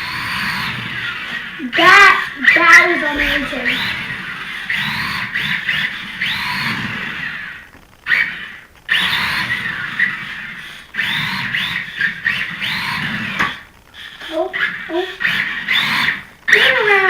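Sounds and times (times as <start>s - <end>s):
rc car electric motor whirring: 0.0s - 17.0s.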